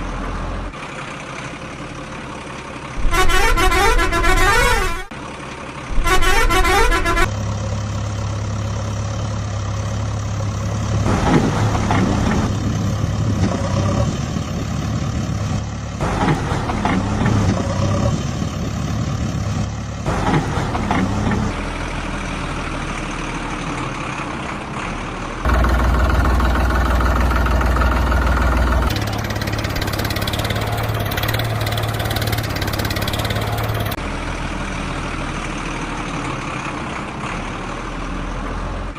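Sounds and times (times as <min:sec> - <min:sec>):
heavy vehicle engine running: 0:00.0 - 0:38.9
vehicle horn tooting: 0:03.0 - 0:05.1, 0:06.0 - 0:07.3.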